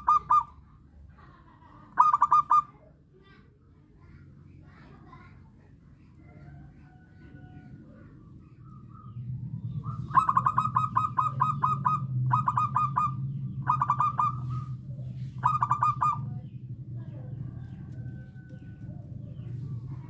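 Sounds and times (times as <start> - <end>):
dove cooing in staccato bursts: 0.0 - 0.8, 1.8 - 2.8, 9.6 - 20.0
steady low hum: 0.0 - 20.0.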